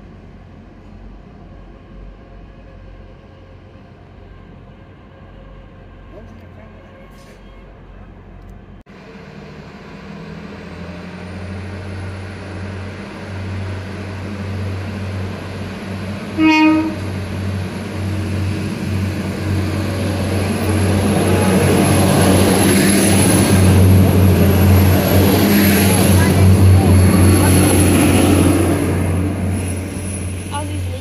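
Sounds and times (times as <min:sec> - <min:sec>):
passenger train approaching: 0:00.0 - 0:31.0
train horn blast: 0:16.3 - 0:17.2.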